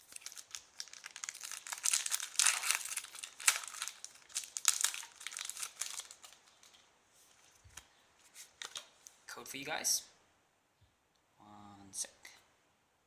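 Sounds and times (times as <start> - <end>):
foil wrapper crinkling: 0.0 - 6.8, 8.5 - 8.9.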